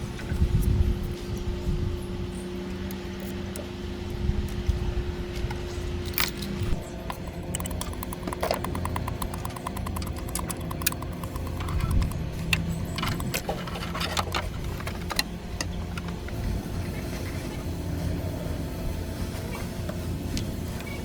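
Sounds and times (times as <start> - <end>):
rapid evenly spaced tool clicks: 7.0 - 13.7
metal clicks and clinks: 7.1 - 14.3.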